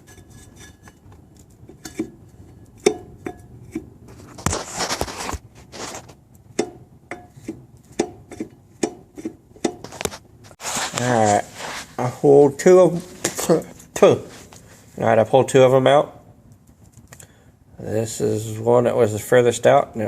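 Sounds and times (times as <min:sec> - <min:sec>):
metal bolts clicking and clinking: 0:00.0 - 0:03.9.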